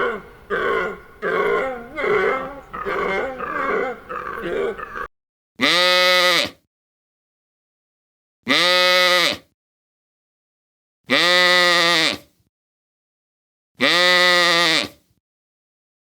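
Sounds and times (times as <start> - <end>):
farm animal bleating: 0.0 - 6.5, 13.8 - 15.0.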